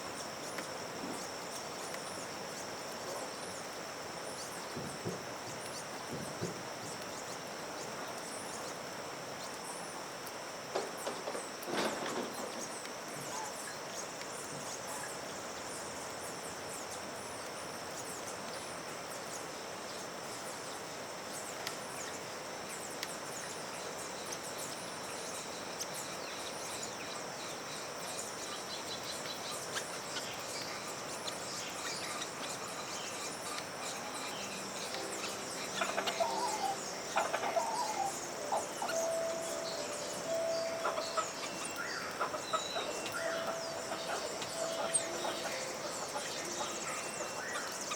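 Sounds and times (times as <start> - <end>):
background hiss: 0.0 - 47.9
small birds chirping: 0.0 - 47.9
loud bird calls: 29.7 - 47.9
high-pitched drone: 34.1 - 47.8.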